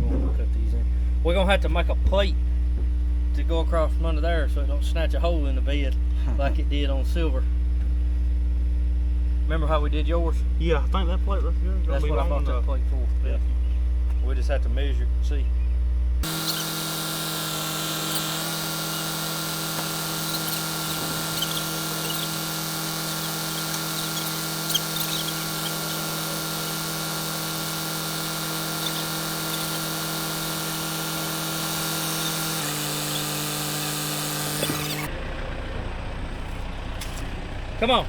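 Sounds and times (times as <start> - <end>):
power tool running on metal: 16.2 - 35.1.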